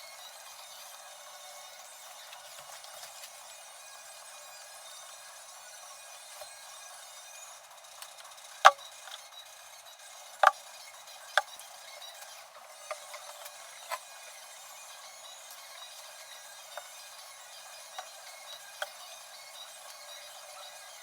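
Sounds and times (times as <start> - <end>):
hand tools clicking and knocking: 12.9 - 13.5.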